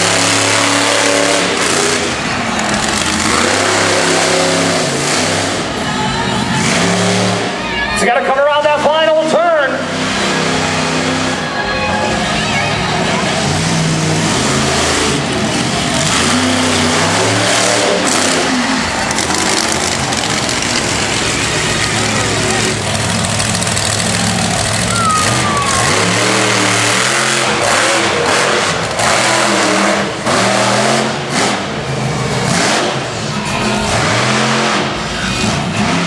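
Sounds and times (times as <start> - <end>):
monster truck engine revving: 0.0 - 36.0
loud noisy bed: 12.9 - 33.0.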